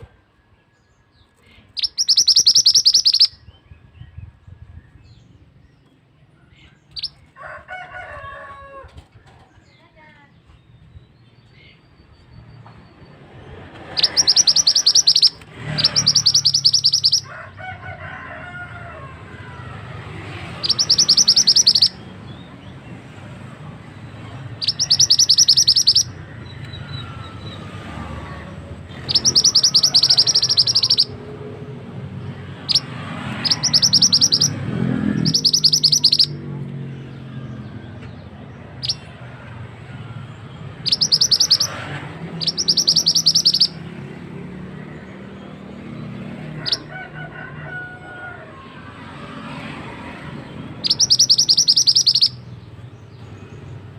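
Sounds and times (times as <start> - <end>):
bird chattering trills: 1.6 - 3.4, 13.9 - 17.3, 20.6 - 22.5, 24.2 - 27.5, 28.9 - 31.3, 32.6 - 36.4, 38.8 - 39.1, 40.8 - 43.8, 50.8 - 53.4.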